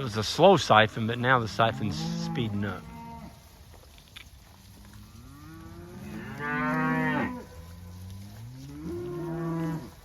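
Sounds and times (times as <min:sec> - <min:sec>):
cattle mooing: 0:05.0 - 0:10.0.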